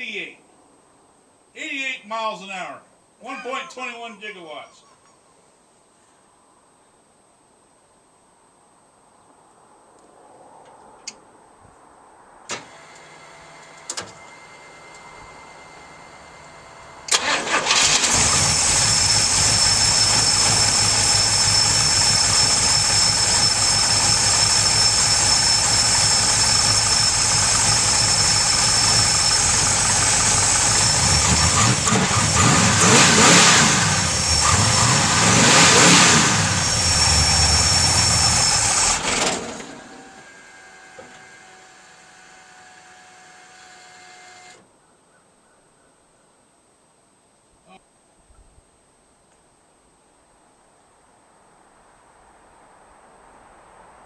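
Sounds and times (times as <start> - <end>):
car engine starting and idling: 12.5 - 44.7
engine revving: 14.6 - 43.7.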